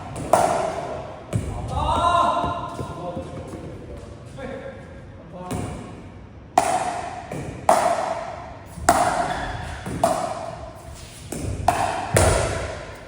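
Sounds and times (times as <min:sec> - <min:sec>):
paddles hitting plastic ball: 0:00.1 - 0:03.8, 0:06.6 - 0:10.5, 0:11.3 - 0:12.9.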